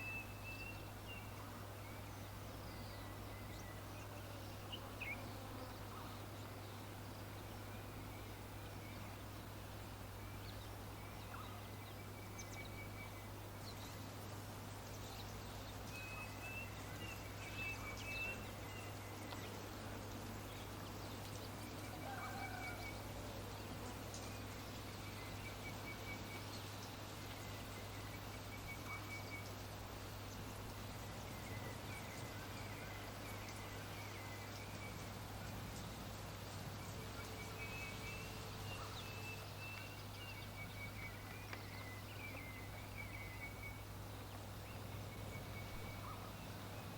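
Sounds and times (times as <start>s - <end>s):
low hum and hiss: 0.0s - 46.9s
birds chirping trills: 14.8s - 46.9s.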